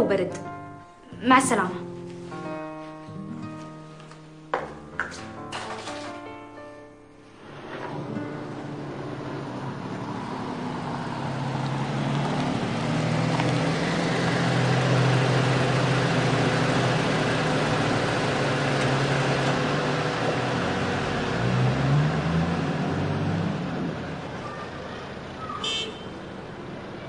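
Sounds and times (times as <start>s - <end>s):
car engine running: 7.4s - 25.6s.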